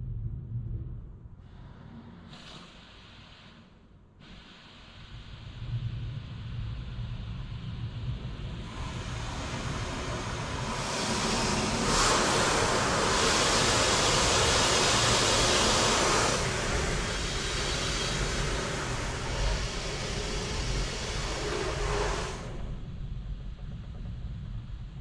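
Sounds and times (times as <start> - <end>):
car wash machine rumble: 7.9 - 22.8
rushing hiss of water: 8.4 - 22.7.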